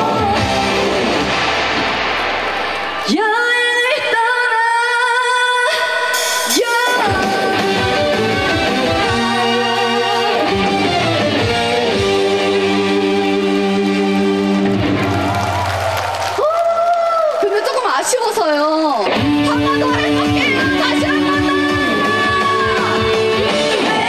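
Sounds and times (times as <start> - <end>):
band with guitar: 0.0 - 3.4, 6.1 - 15.9, 18.8 - 24.0
woman singing with vibrato: 3.1 - 10.7, 19.1 - 24.0.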